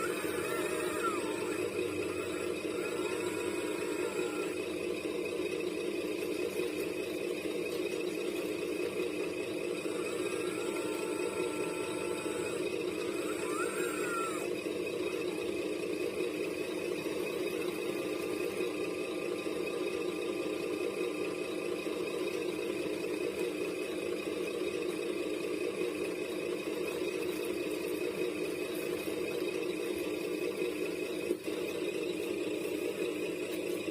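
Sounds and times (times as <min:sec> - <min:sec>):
whines gliding in pitch: 0:00.0 - 0:04.8, 0:09.7 - 0:15.4
mechanical hum of models: 0:00.0 - 0:33.9.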